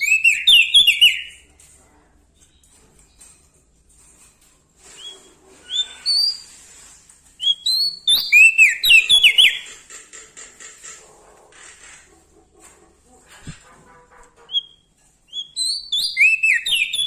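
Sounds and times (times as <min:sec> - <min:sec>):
small songbird singing: 0:00.0 - 0:01.4, 0:07.4 - 0:09.7, 0:14.5 - 0:17.0.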